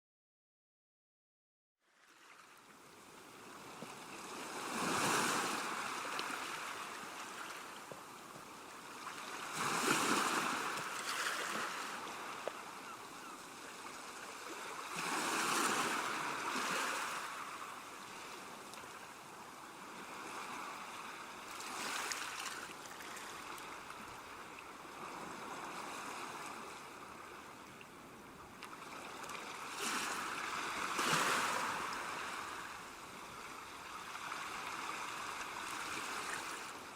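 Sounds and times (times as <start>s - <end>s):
waves breaking on rocky shore: 4.3s - 7.6s, 9.0s - 12.5s, 14.2s - 17.8s, 20.1s - 23.5s, 28.9s - 32.9s.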